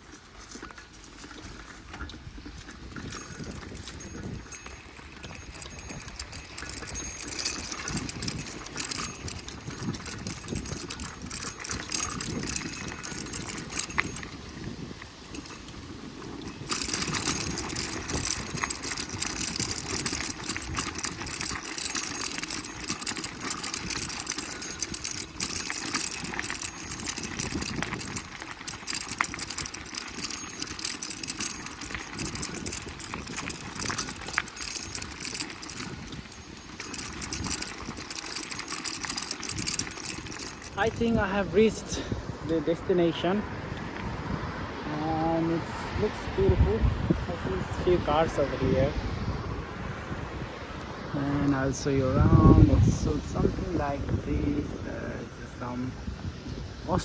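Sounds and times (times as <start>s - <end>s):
bike parts rattling and clicking: 0.0s - 43.2s
bicycle tyre noise on road: 0.0s - 57.0s.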